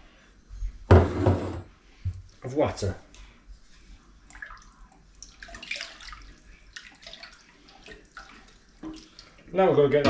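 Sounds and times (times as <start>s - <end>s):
water poured into a pot: 4.3s - 9.7s.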